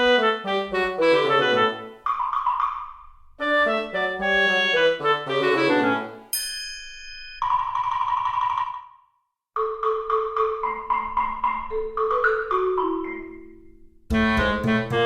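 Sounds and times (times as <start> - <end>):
mallet percussion tune: 9.6 - 14.8.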